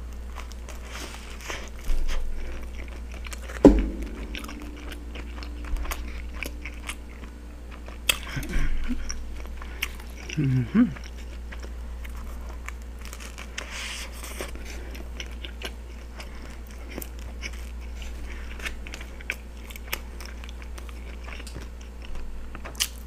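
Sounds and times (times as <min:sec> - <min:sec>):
steady low hum: 0:03.6 - 0:12.8.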